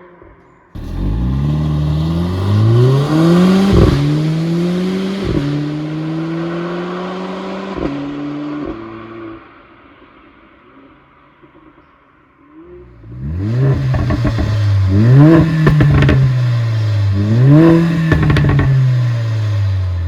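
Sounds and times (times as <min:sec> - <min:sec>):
car engine accelerating hard: 0:00.8 - 0:09.4, 0:12.8 - 0:20.0.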